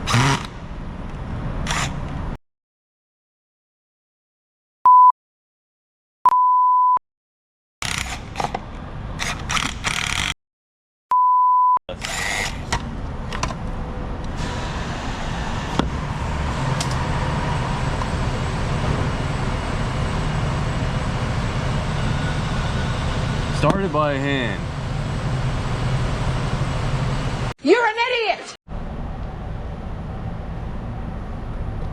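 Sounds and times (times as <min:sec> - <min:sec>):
censor bleeps: 0:04.9 - 0:05.2, 0:06.3 - 0:07.0, 0:11.1 - 0:11.8
vehicle engine running: 0:13.6 - 0:27.5.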